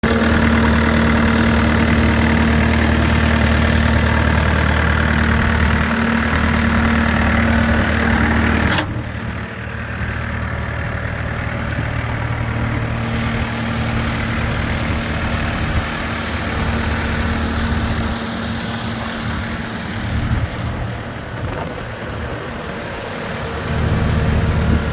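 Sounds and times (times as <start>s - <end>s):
diesel engine running: 0.0s - 24.9s.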